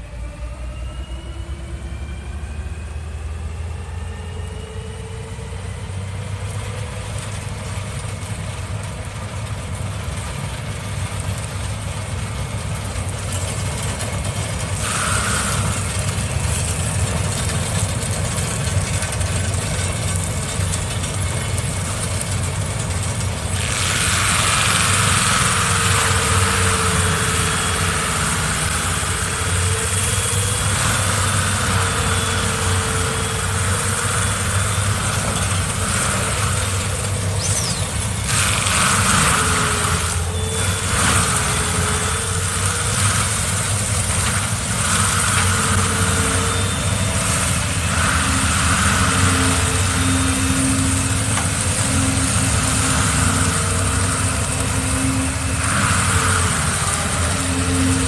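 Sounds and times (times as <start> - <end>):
heavy machine engine running: 0.0 - 58.0.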